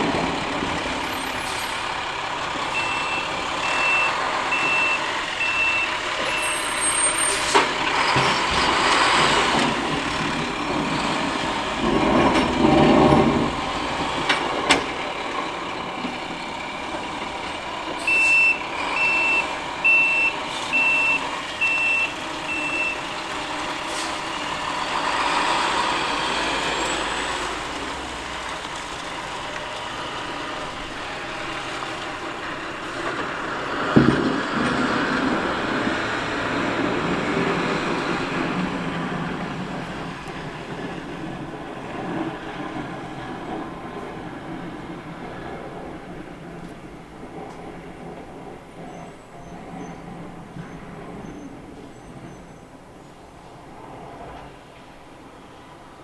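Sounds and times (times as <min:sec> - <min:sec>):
truck backup alarm beeping: 0:00.0 - 0:39.2
truck engine rumble: 0:00.0 - 0:56.0.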